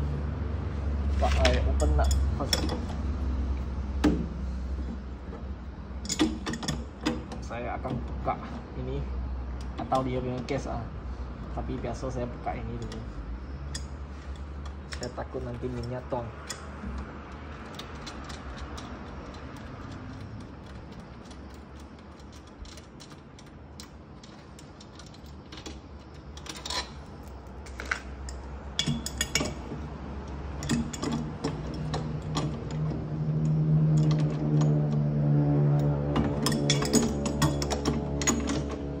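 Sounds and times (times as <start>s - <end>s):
metallic clicks of hand tools: 6.0s - 7.4s, 12.8s - 35.1s, 35.7s - 39.0s.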